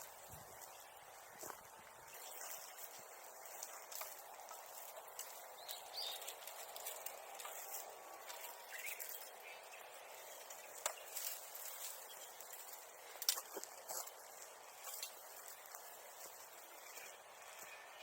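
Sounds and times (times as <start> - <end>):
rustling in dry brush: 0.0 - 18.0
faint bird chirps: 8.4 - 10.6.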